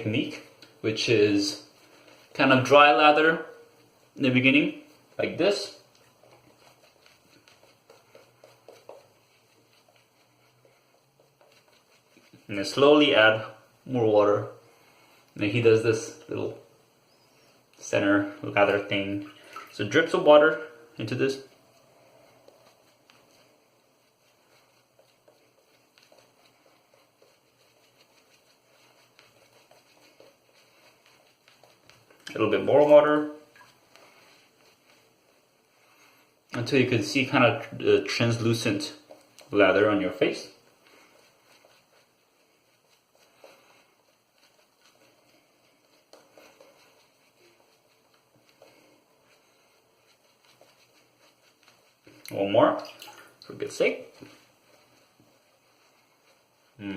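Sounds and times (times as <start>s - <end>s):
shaving brush lathering soap: 0.0s - 16.9s, 17.5s - 56.9s
water dripping: 18.6s - 19.9s, 33.5s - 34.0s, 51.6s - 54.4s.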